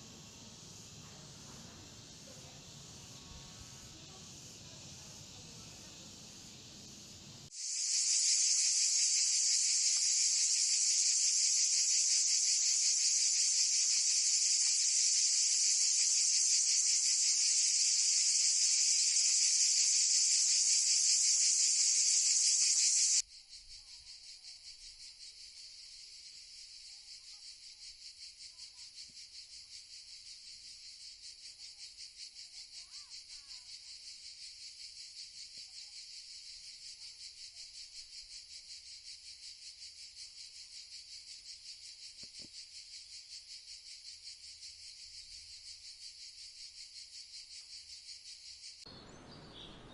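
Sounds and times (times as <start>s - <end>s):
high-pitched insect buzz: 0.0s - 23.2s
pulsing insect trill: 0.0s - 49.9s.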